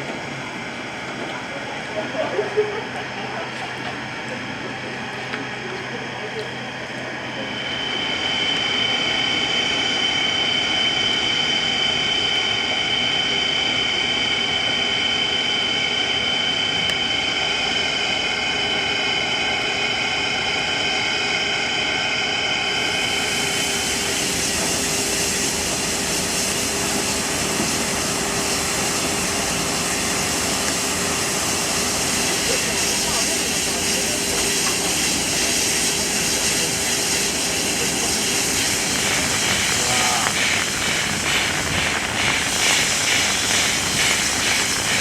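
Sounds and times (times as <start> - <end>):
steam locomotive venting steam: 22.6 - 45.0.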